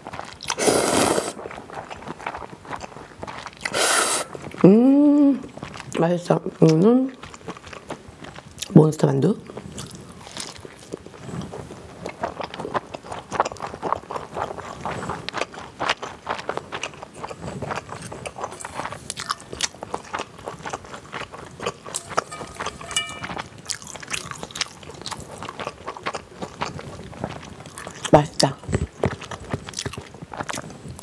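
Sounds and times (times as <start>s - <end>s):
chewing dumpling: 0.0s - 8.8s, 9.4s - 23.1s, 23.7s - 31.0s
chopsticks clinking on metal bowl: 18.4s - 19.7s, 21.9s - 23.4s.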